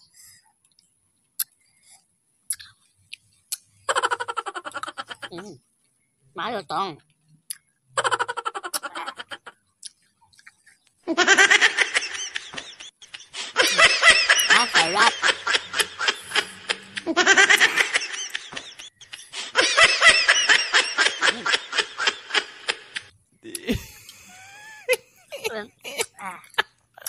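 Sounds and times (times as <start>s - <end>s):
speech: 6.4s - 7.0s, 14.5s - 15.3s, 23.5s - 23.9s, 25.4s - 26.6s
high-pitched laughter: 8.0s - 9.6s, 11.1s - 23.0s, 23.6s - 26.7s.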